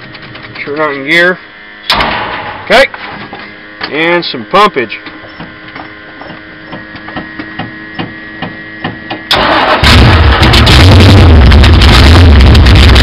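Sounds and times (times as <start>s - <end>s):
race car engine cranking and running: 8.8s - 13.0s.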